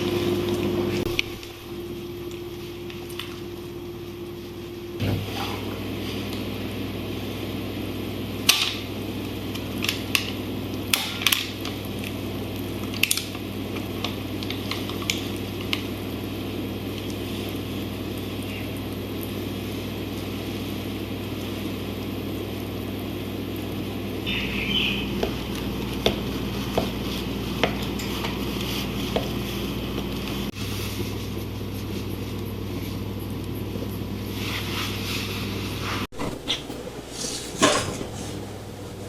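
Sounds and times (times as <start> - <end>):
low appliance hum: 0.0 - 39.0
utensils tapping dishes: 36.2 - 38.5.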